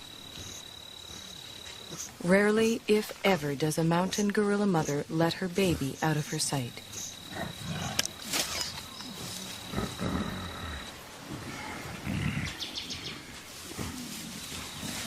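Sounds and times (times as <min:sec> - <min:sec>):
gorillas grunting: 0:06.9 - 0:15.0.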